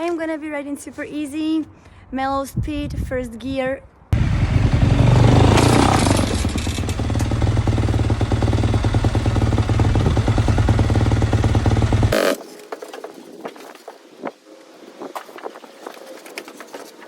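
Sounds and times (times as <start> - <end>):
wind: 0.0 - 17.0
dirt bike engine running: 4.2 - 12.4.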